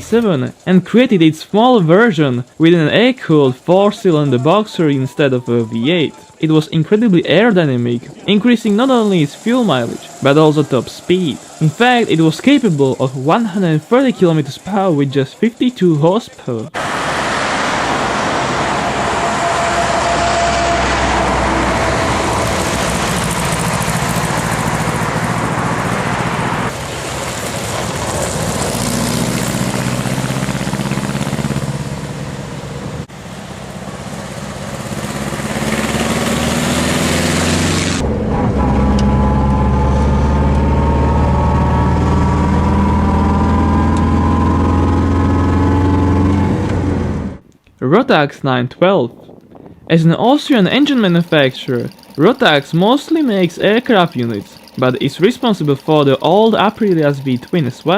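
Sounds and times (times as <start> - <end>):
car engine running: 0.0 - 14.9, 16.6 - 47.4.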